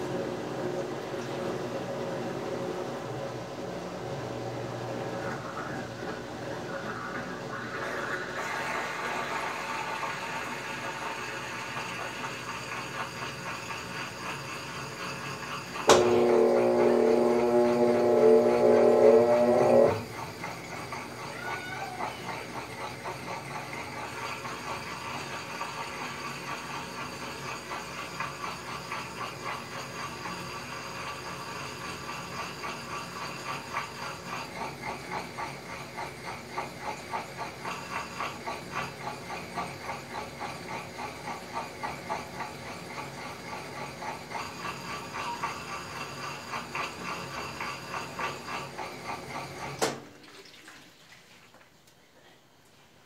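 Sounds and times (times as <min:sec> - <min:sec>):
washing machine water sloshing: 0:48.6 - 0:51.9.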